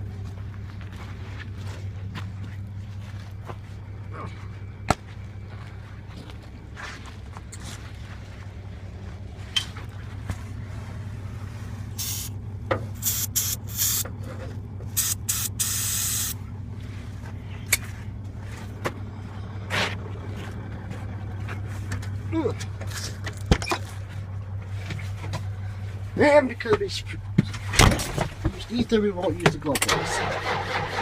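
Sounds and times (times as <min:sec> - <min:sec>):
aerosol can spraying: 0:12.0 - 0:12.3, 0:13.0 - 0:14.0, 0:15.0 - 0:16.4.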